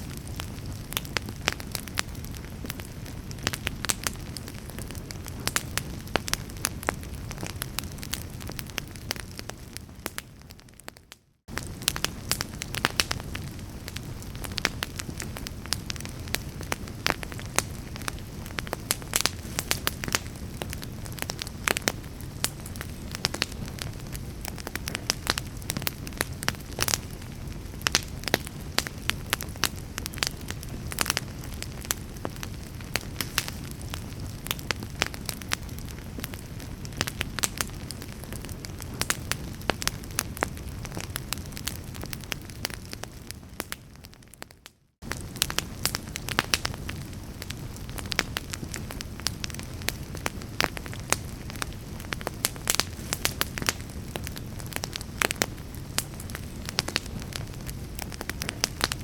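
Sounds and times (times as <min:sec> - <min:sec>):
low rumble of flames: 0:00.0 - 0:59.0
wood fire crackling: 0:00.0 - 0:59.0
sharp pops of burning wood: 0:11.5 - 0:44.4, 0:45.0 - 0:59.0.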